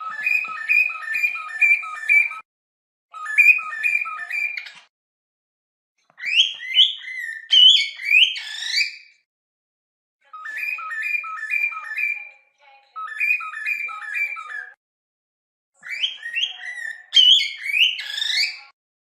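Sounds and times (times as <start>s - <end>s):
bird-like whistling: 0.0s - 2.4s, 3.2s - 4.7s, 10.4s - 12.2s, 13.0s - 14.8s.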